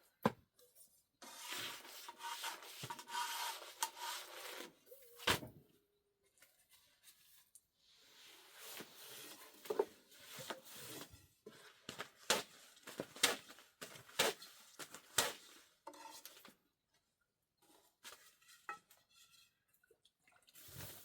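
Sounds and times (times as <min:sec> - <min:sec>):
rustling and scraping: 0:17.6 - 0:19.6.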